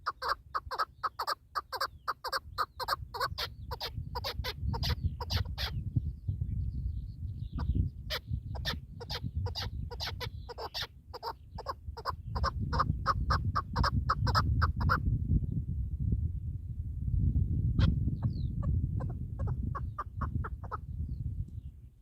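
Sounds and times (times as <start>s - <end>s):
partridge clucking calls: 0.0s - 5.8s, 7.6s - 15.0s, 17.8s - 20.8s.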